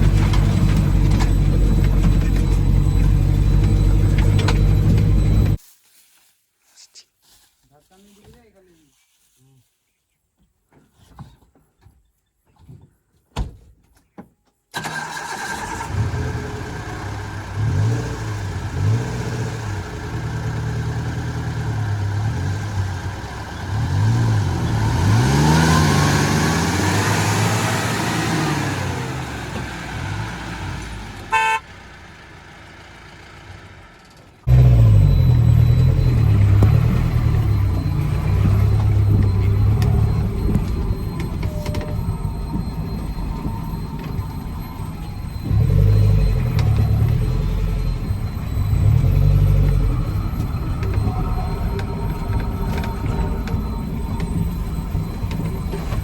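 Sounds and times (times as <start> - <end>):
horn beep: 0.0 - 5.6, 17.4 - 31.8, 34.5 - 56.0
off-road vehicle engine revving: 0.0 - 5.6, 14.8 - 56.0.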